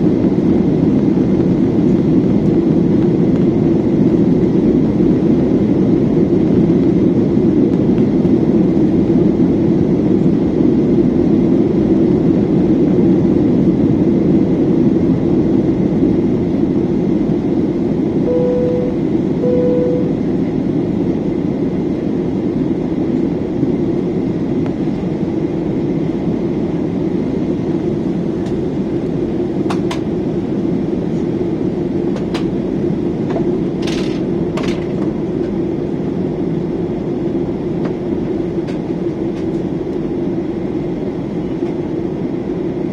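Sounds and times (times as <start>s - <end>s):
jet engine cabin drone: 0.0s - 42.9s
short tones: 18.3s - 20.3s.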